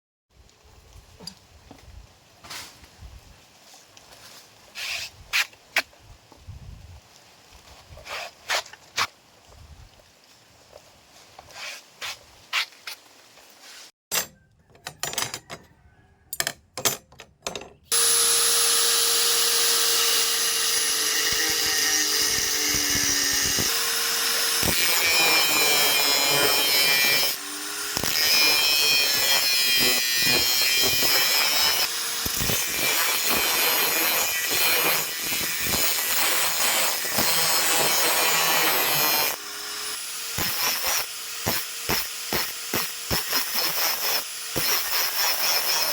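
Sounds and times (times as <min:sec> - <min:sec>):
power tool running under load: 0:17.9 - 0:45.9.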